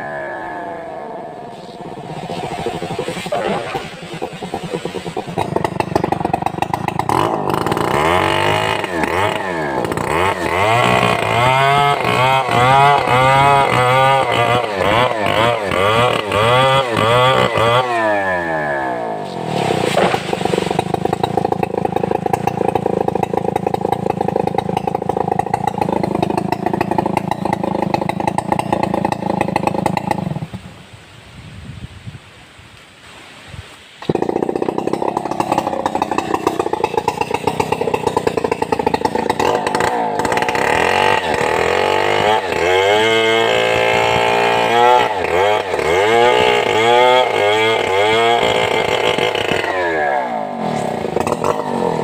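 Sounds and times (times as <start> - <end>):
chainsaw running: 0.0 - 30.6, 34.0 - 52.0.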